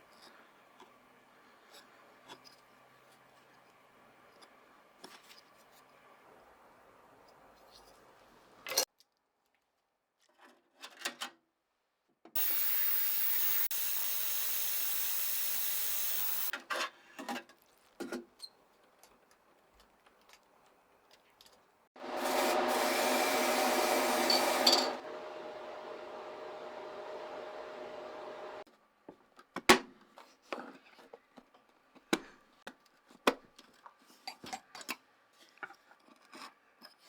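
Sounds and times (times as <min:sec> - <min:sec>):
motor-driven tool running: 0:12.4 - 0:16.5.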